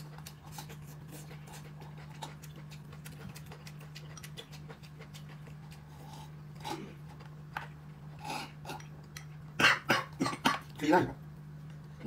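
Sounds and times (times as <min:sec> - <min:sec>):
chewing: 0:00.0 - 0:09.4.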